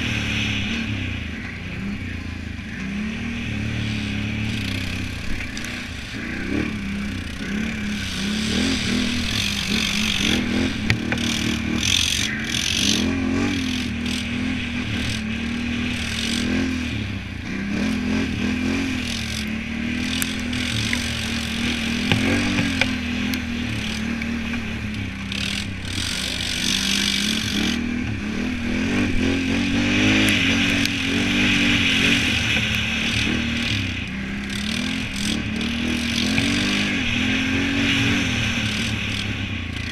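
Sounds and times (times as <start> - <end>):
atv engine revving: 0.0 - 39.9
sharp ticks: 8.9 - 14.3, 19.0 - 27.8.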